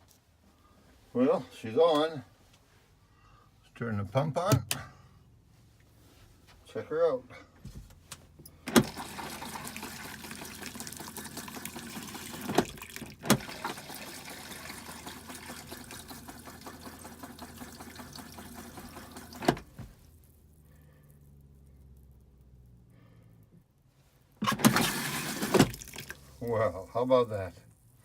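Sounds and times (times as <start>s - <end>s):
toilet flushing water rushing: 8.7s - 19.6s, 24.5s - 26.2s.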